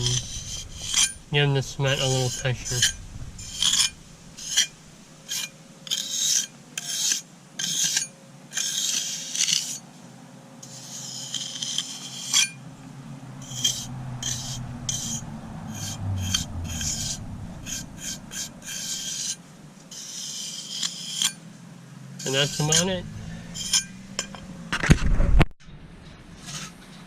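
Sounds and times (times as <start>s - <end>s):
hand tool scraping cement: 10.6s - 12.5s, 18.0s - 21.3s.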